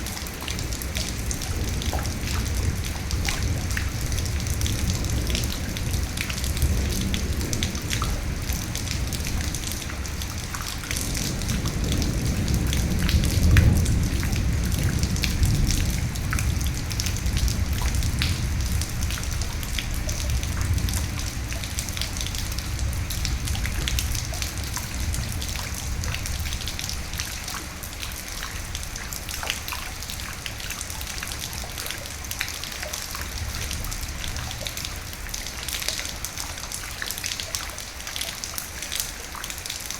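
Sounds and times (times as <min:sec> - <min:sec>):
rolling thunder rumble: 0:00.0 - 0:27.6
rain drops ticking: 0:00.0 - 0:39.9.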